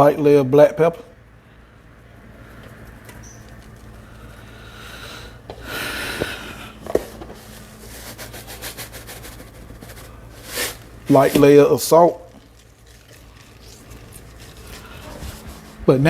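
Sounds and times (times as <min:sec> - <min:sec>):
pepper mill grinding: 0:12.2 - 0:15.8.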